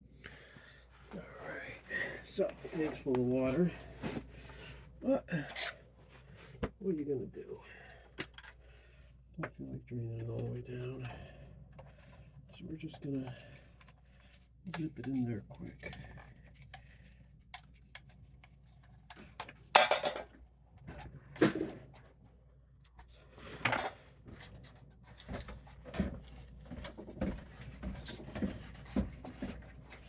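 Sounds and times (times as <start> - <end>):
tools clanking on metal: 19.8 - 20.3.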